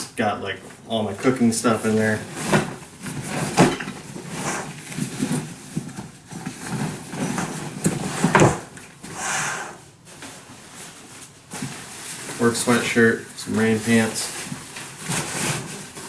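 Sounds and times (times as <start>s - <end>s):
rustling of gear: 1.8s - 9.2s.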